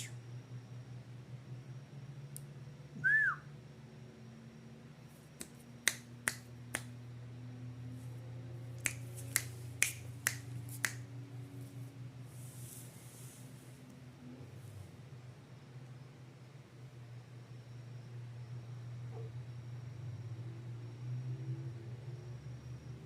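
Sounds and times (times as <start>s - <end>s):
steady low hum: 0.0s - 23.0s
finger snaps: 2.3s - 2.5s, 5.4s - 7.0s, 8.8s - 11.1s.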